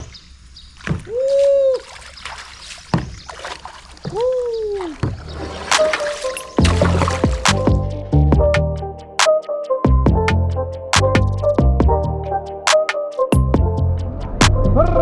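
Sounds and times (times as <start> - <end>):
water splashing: 0.0 - 8.0
music with a beat: 5.7 - 14.7.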